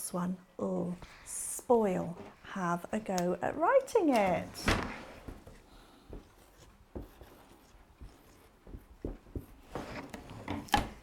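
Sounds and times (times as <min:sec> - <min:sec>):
pen scratching while writing: 0:06.4 - 0:10.1.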